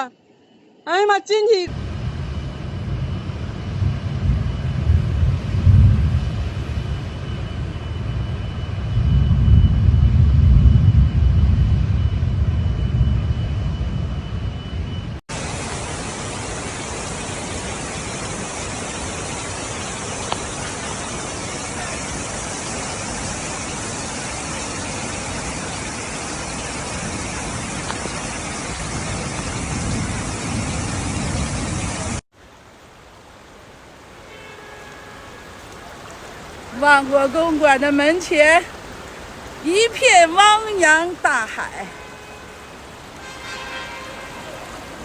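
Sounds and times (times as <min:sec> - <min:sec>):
heavy rain hissing: 0:15.3 - 0:45.0
running water: 0:15.3 - 0:45.0.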